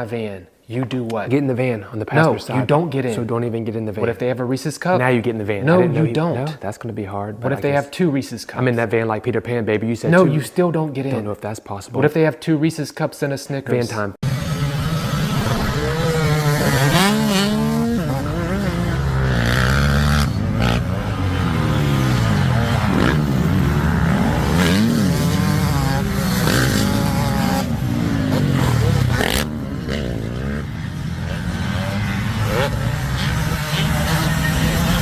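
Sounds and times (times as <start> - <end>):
dirt bike engine revving: 14.2 - 35.0.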